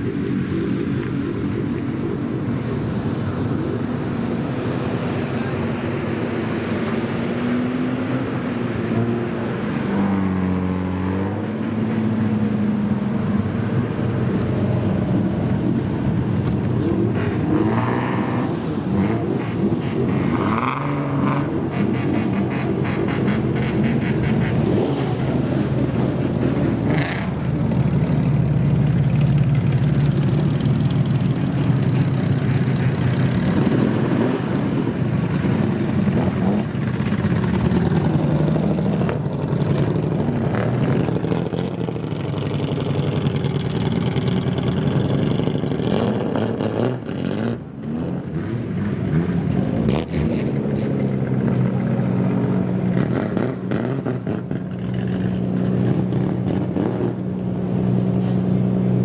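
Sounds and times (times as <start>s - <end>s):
loud car engine running: 12.2s - 59.0s.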